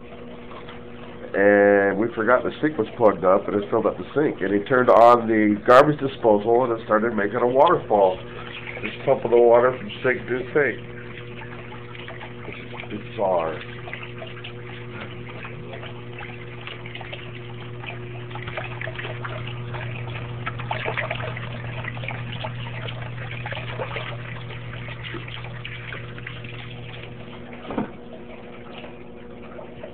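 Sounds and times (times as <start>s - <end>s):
garbage disposal motor humming: 0.0s - 29.9s
water splashing and gurgling: 0.0s - 29.9s.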